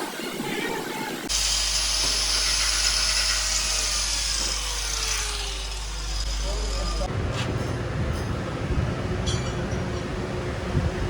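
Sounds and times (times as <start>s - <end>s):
power tool hissing and whining: 1.3s - 7.1s.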